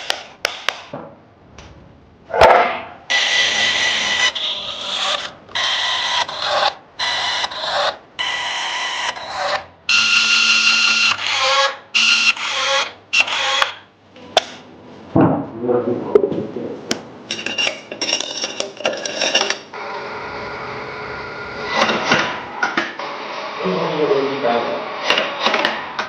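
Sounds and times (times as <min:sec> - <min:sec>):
workshop tool rasping and hissing: 0:03.1 - 0:13.8.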